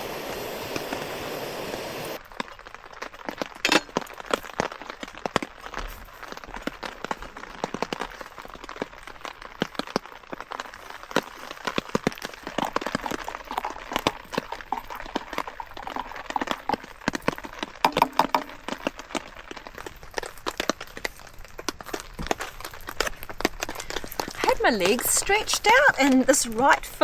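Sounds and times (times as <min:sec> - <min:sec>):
hissing squeal from burning wood: 0:00.0 - 0:02.4
campfire crackling and popping: 0:00.0 - 0:27.0.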